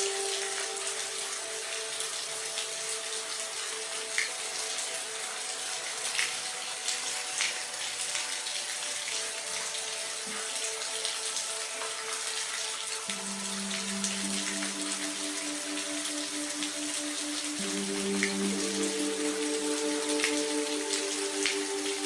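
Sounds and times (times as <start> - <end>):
steady rain falling: 0.0 - 22.0
faint steady tones: 13.1 - 22.0.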